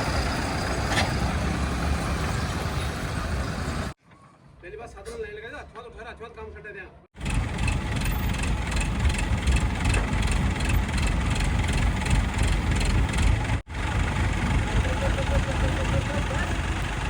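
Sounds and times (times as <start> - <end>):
diesel engine clattering: 0.0 - 4.0, 7.2 - 17.0.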